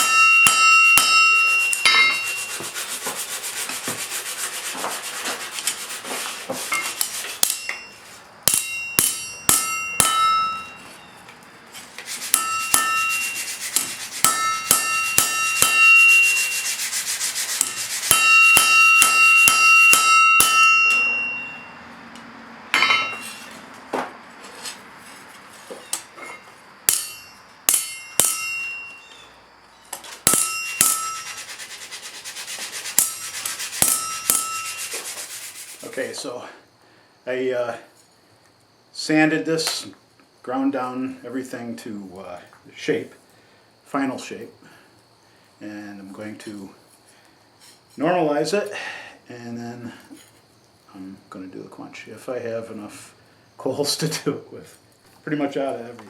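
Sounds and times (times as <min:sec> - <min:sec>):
ringing metallic strikes: 0:00.0 - 0:02.6, 0:07.4 - 0:11.1, 0:12.4 - 0:13.5, 0:14.2 - 0:16.7, 0:18.1 - 0:21.8, 0:26.9 - 0:29.1, 0:30.3 - 0:31.4, 0:33.0 - 0:34.9
fast rasping strokes: 0:01.0 - 0:07.7, 0:11.8 - 0:20.6, 0:30.3 - 0:36.0.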